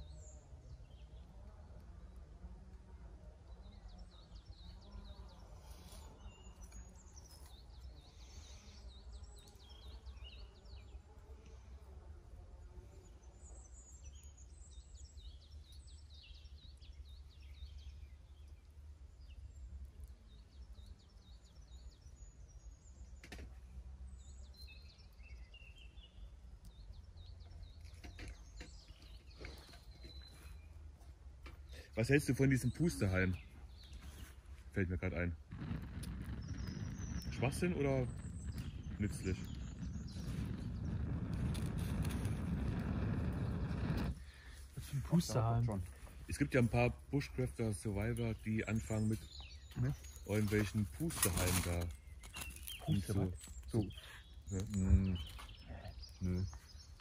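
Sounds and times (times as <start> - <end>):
songbirds chirping and trilling: 0.0 - 57.0
low rumble: 35.4 - 44.3.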